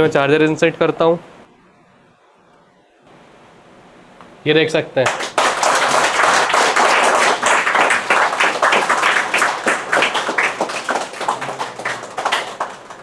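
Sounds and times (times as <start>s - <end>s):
people clapping: 5.0s - 13.0s.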